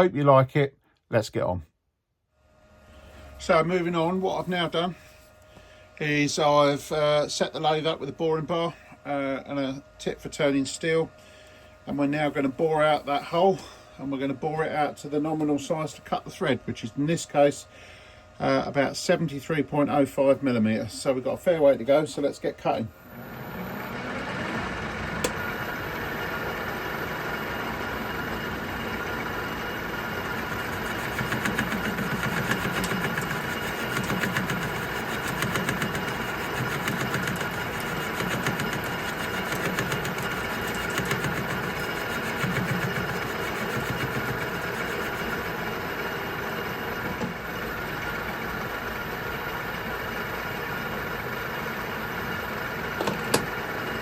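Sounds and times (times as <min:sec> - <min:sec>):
metal lathe boring steel: 0:23.1 - 0:47.0.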